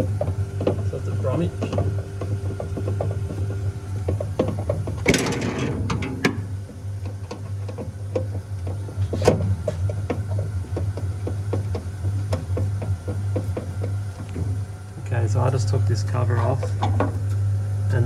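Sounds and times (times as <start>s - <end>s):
fridge compressor hum: 0.0s - 18.0s
panel cover clicks and knocks: 4.4s - 8.3s.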